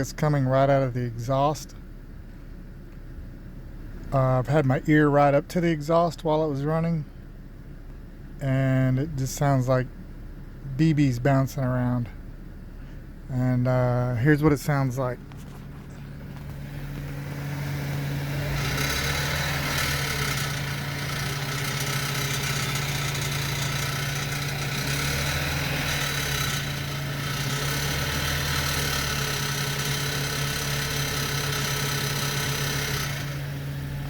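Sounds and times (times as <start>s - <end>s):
car engine idling: 0.0s - 34.0s
exhaust rattle: 0.0s - 34.0s.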